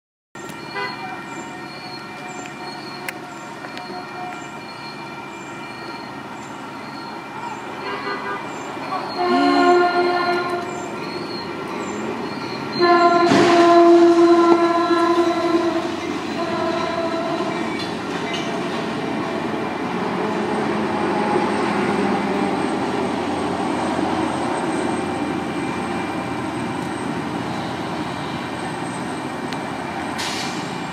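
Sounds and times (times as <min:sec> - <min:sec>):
train horn blasts: 0:00.7 - 0:06.2, 0:07.8 - 0:10.9, 0:12.7 - 0:17.9
train wheels on rails: 0:08.4 - 0:30.9.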